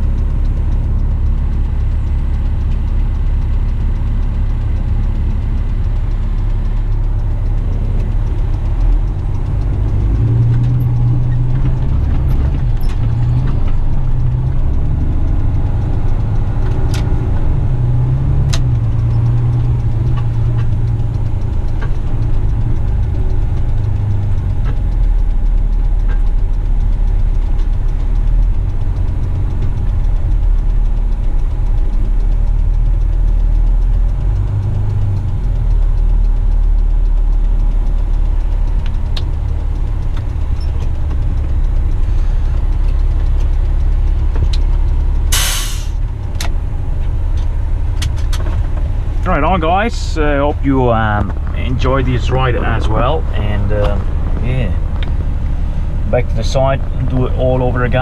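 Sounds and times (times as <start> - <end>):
sharp clicks: 0.0 - 58.0
truck diesel engine running: 0.0 - 58.0.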